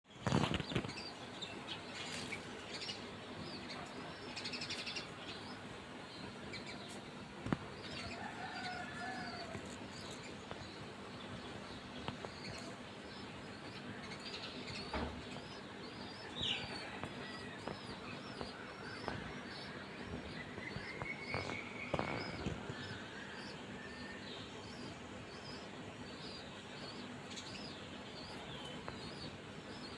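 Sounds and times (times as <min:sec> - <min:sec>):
steady background noise: 0:00.1 - 0:29.9
baby bird chirping: 0:20.8 - 0:22.6.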